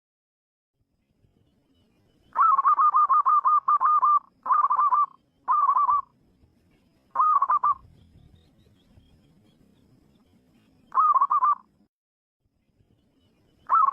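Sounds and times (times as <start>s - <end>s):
dove cooing: 2.4s - 6.1s, 7.1s - 7.8s, 10.9s - 11.6s, 13.7s - 13.9s.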